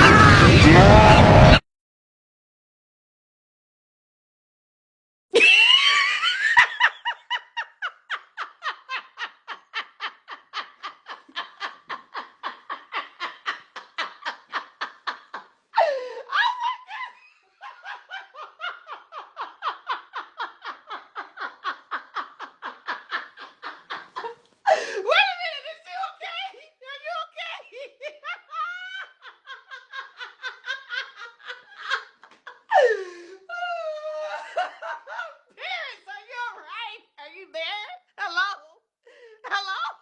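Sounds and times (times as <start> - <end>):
person laughing hard: 0.0 - 1.6, 5.4 - 25.0, 27.0 - 35.8
shrill shriek: 0.0 - 1.6.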